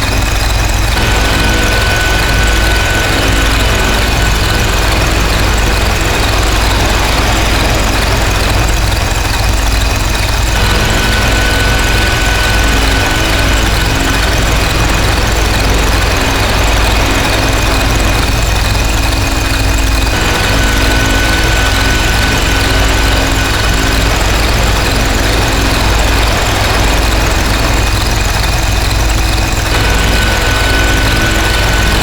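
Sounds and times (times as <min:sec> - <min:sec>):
distorted noise drone: 0:00.0 - 0:32.0
heavy low rumble: 0:00.7 - 0:32.0.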